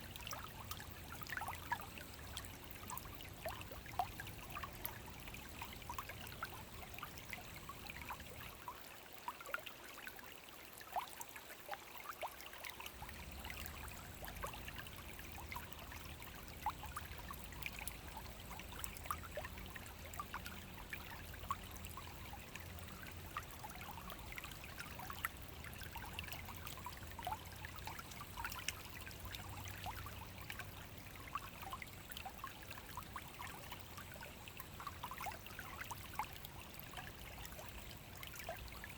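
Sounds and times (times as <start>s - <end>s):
brook flowing over stones: 0.0s - 38.9s.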